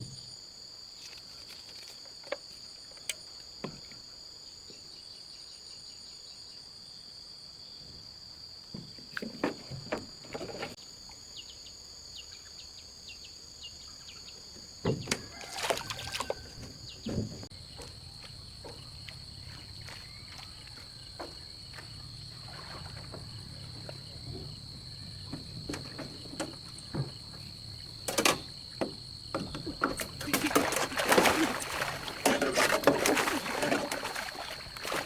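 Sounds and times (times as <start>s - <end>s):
high-pitched insect chorus: 0.0s - 35.0s
knocks and clattering: 22.7s - 35.0s.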